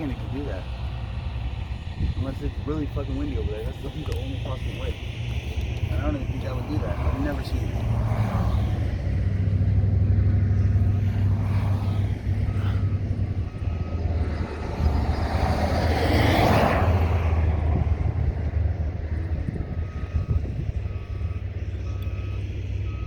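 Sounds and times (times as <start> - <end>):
vehicle engine humming: 0.0 - 23.0
faint reversing beeps: 2.2 - 8.9, 10.6 - 16.0, 17.8 - 23.0.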